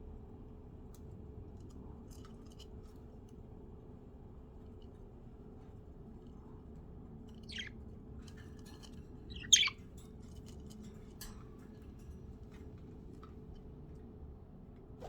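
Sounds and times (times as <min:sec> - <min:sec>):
budgerigar chirps: 0:09.3 - 0:09.8.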